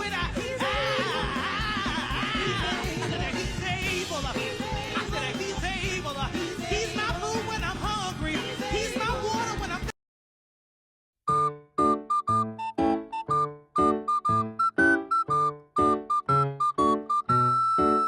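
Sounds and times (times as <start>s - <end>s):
band accompaniment: 0.0s - 9.9s
steady drum beat: 0.0s - 9.9s
gospel choir singing: 0.3s - 9.9s.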